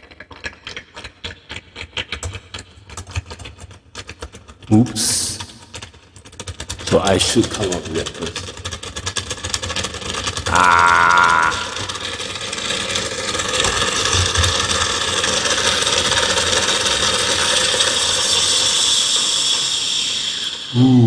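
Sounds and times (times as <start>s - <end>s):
steam wand hissing: 17.1s - 21.0s.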